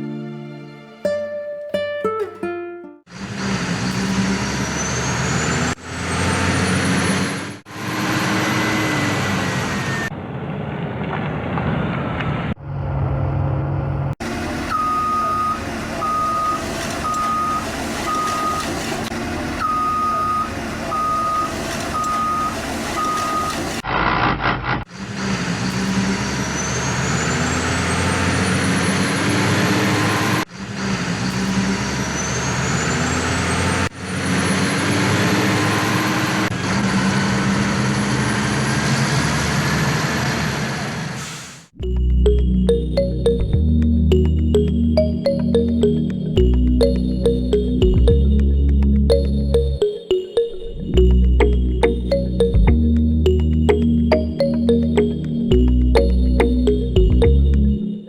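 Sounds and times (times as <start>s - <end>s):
truck engine accelerating: 3.2s - 11.6s, 41.8s - 49.8s, 50.9s - 58.0s
truck reversing alarm beeping: 14.3s - 23.8s, 41.8s - 58.0s.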